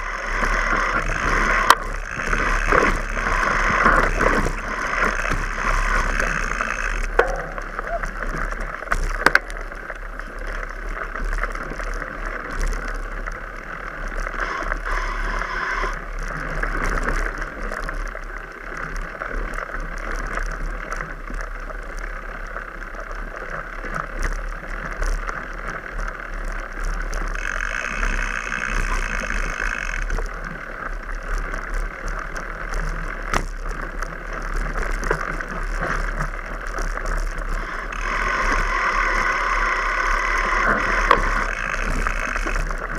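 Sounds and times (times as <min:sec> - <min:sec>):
bike clicks and rattles: 0:00.0 - 0:42.9
bike tyres on rough ground: 0:00.0 - 0:42.9.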